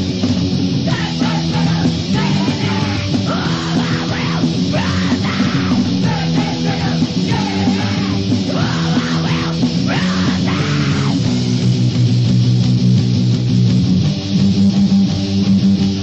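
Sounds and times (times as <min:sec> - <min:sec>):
distorted electric guitars: 0:00.0 - 0:16.0
punk rock song: 0:00.0 - 0:16.0
shouted vocals: 0:00.8 - 0:11.3.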